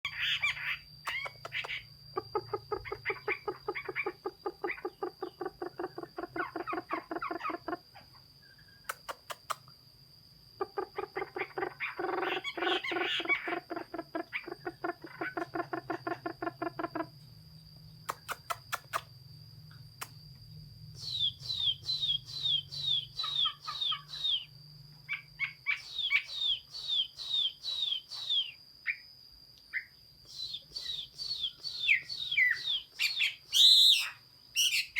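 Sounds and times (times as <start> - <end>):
bird singing repeated notes: 0.0 - 7.8, 10.6 - 17.1, 20.9 - 34.9
quick downward whistles: 30.3 - 34.9.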